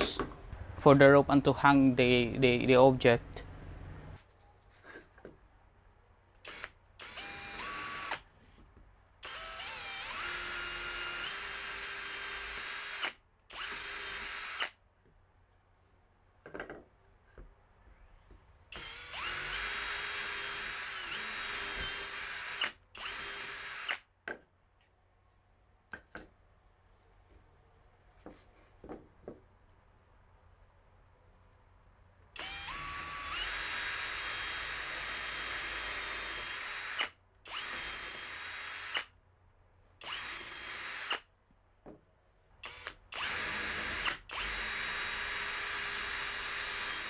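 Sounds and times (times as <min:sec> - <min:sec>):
power drill boring through wood: 0:06.4 - 0:08.2, 0:09.2 - 0:14.7, 0:18.7 - 0:24.0, 0:32.4 - 0:39.1, 0:40.0 - 0:41.2, 0:42.6 - 0:47.0.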